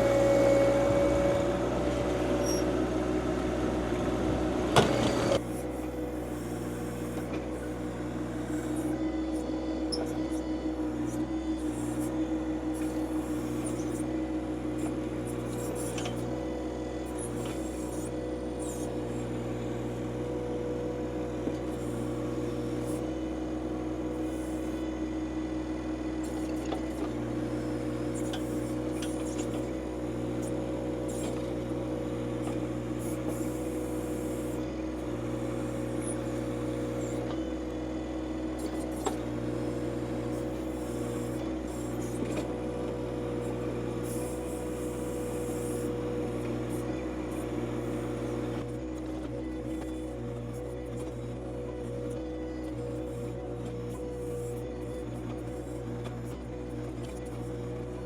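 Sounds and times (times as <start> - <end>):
tractor diesel engine humming: 0.0 - 7.1.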